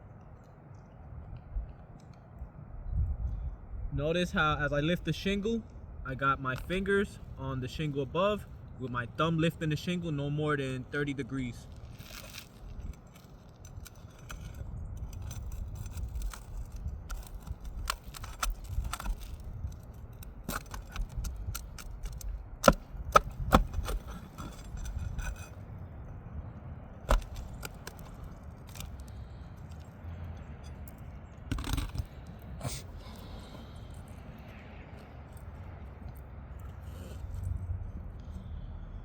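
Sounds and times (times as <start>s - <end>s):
crowbar scraping on shingles: 11.0s - 26.0s, 27.0s - 29.9s, 30.6s - 34.2s
small clicks: 11.7s - 25.5s.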